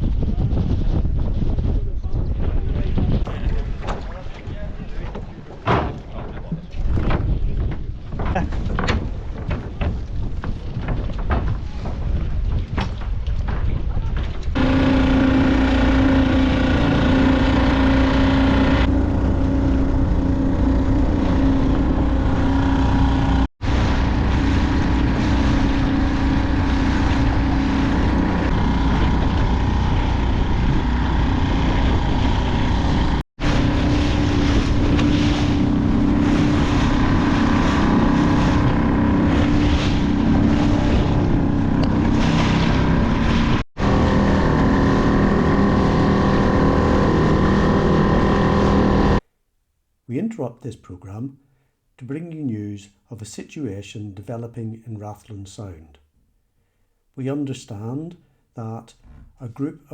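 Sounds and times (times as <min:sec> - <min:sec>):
water noise: 0:00.0 - 0:49.2
wind: 0:00.0 - 0:49.2
boat motor droning: 0:14.4 - 0:49.2.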